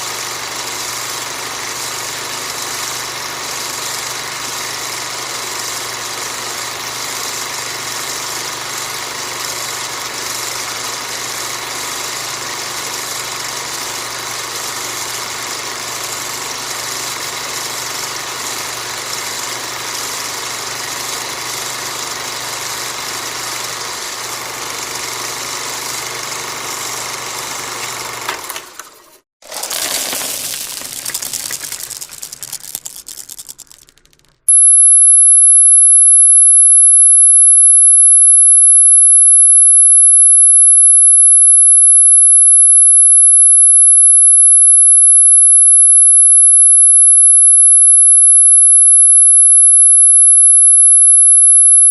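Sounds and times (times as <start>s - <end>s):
high-pitched tone: 34.5s - 51.9s.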